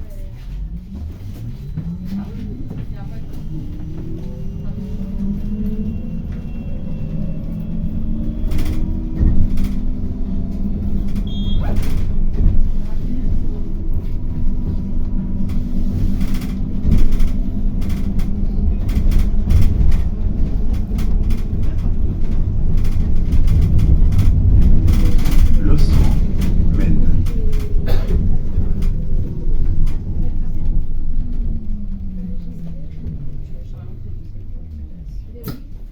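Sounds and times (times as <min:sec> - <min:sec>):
bus accelerating whine: 0:00.0 - 0:35.9
bus engine rumble: 0:00.0 - 0:35.9
knocks and rattles: 0:07.5 - 0:32.0.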